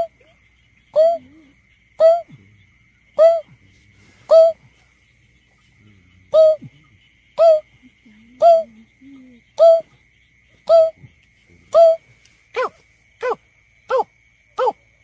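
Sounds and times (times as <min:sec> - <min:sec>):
bird hooting notes: 0:04.3 - 0:04.6.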